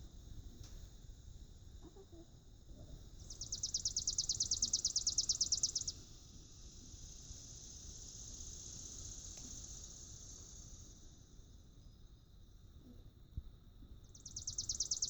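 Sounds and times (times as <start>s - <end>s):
insect trilling: 3.2s - 11.0s, 14.2s - 15.0s
high insect buzz: 3.3s - 11.5s.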